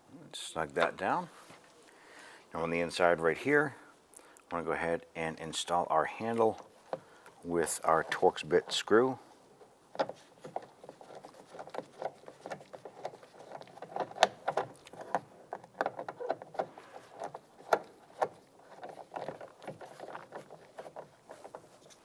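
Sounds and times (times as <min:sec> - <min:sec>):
parts rattling against door shell: 0:06.0 - 0:22.0.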